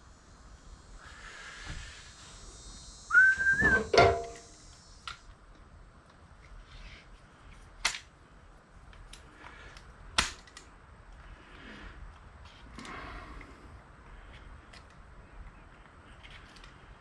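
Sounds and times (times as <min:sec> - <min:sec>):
metal scrap clanking into bucket: 0:03.6 - 0:04.4.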